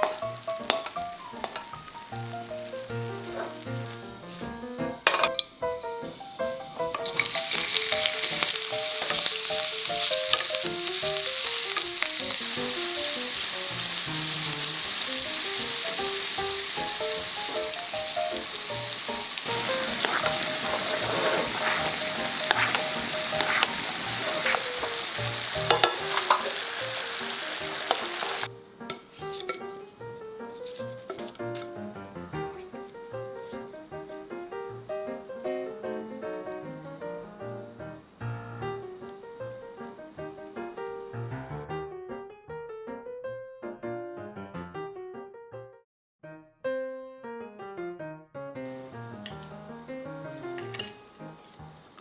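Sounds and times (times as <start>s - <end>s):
food sizzling in a pan: 0.0s - 4.5s, 6.0s - 29.9s
light background melody: 0.0s - 41.7s.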